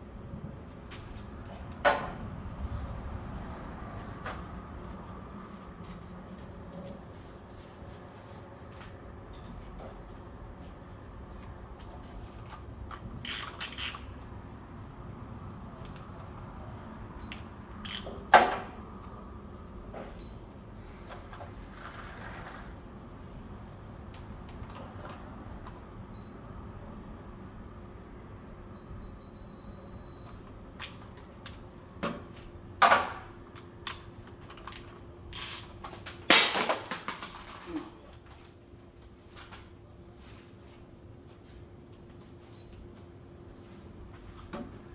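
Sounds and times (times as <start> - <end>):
metal objects clanking: 36.3 - 37.6.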